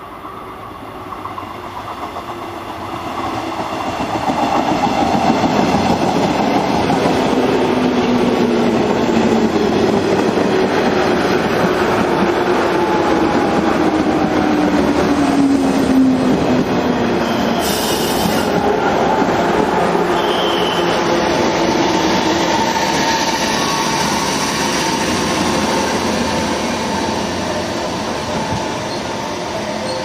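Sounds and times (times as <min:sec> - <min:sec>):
short hiss: 0:17.6 - 0:18.5.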